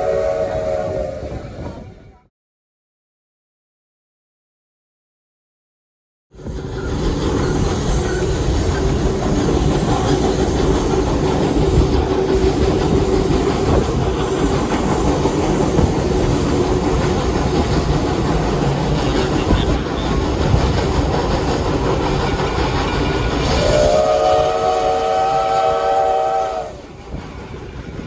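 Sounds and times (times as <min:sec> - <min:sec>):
train rumbling on track: 0:00.0 - 0:02.3, 0:06.3 - 0:28.0
wheels clickety-clack: 0:06.4 - 0:24.6, 0:26.6 - 0:28.0.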